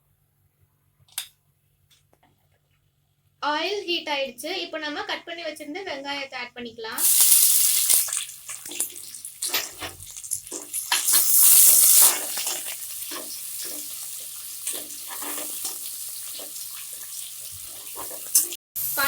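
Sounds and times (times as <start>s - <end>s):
onions sizzling in hot oil: 7.0s - 19.0s
spoon scraping and knocking pot: 8.5s - 18.6s.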